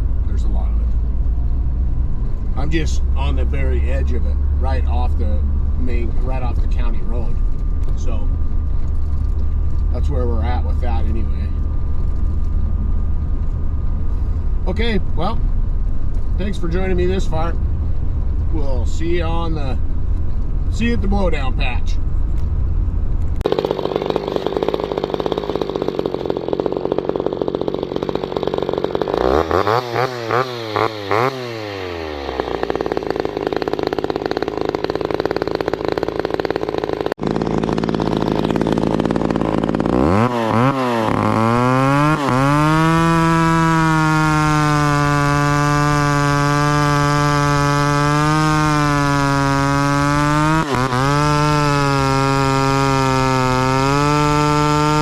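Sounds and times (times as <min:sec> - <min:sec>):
chainsaw revving: 0:02.6 - 0:07.4, 0:23.4 - 0:55.0.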